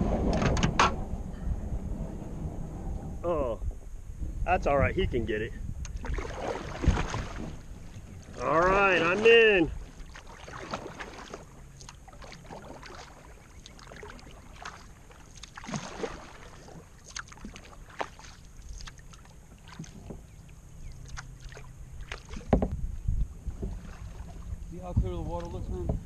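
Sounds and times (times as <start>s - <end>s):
paddle splashing water: 5.9s - 26.0s.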